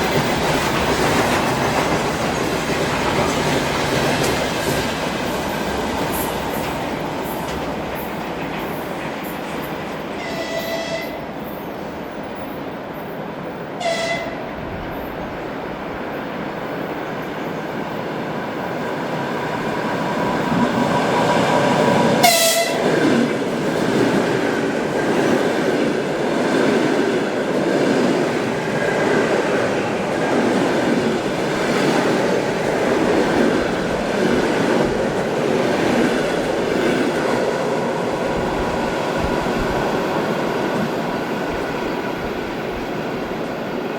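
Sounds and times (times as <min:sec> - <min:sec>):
train wheels rumbling on rails: 0:00.0 - 0:43.9
train horn toots: 0:10.2 - 0:11.3, 0:13.8 - 0:14.5, 0:22.2 - 0:23.0.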